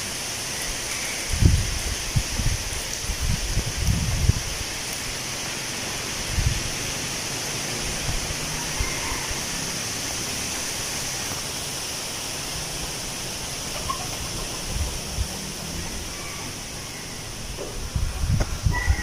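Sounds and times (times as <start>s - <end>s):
wind rustling leaves: 0.0s - 19.0s
wind buffeting microphone: 1.2s - 4.7s, 6.2s - 6.8s, 14.1s - 16.1s, 17.4s - 19.0s.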